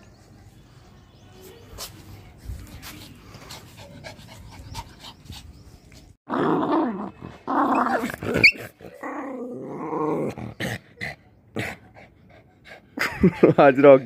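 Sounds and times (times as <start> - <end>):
dogs growling in play: 6.3 - 12.0.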